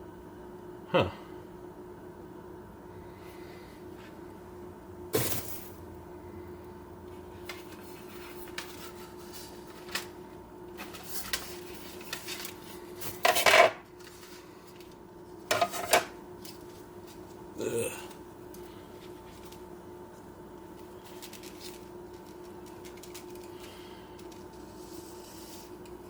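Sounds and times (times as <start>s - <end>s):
clatter of hard objects: 10.8s - 16.8s, 20.8s - 25.8s.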